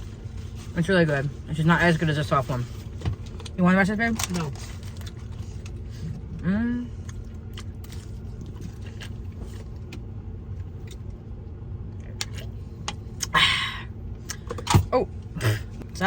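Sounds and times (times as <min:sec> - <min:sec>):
chewing with mouth clicks: 0:07.0 - 0:11.1.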